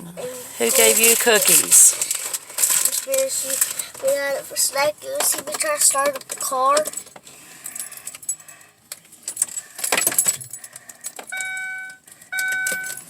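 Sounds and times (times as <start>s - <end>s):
car keys jangling and clicking: 5.1s - 13.0s
car warning chime beeps: 11.3s - 13.0s.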